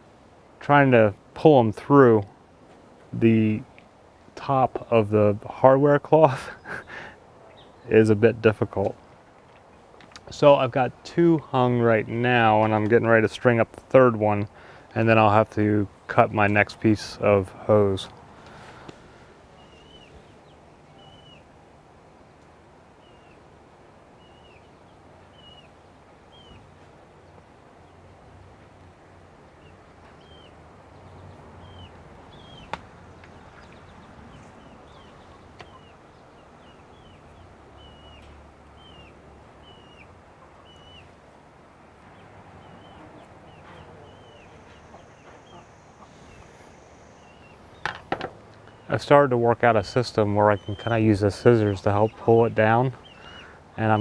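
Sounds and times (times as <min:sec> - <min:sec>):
bird chirping: 0:06.5 - 0:08.0, 0:19.5 - 0:21.5, 0:23.0 - 0:23.5, 0:24.2 - 0:28.1, 0:29.4 - 0:54.0.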